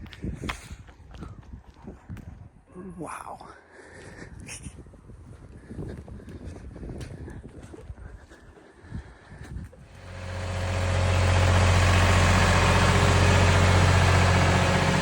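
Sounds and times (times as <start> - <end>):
vehicle engine humming: 9.9 - 15.0.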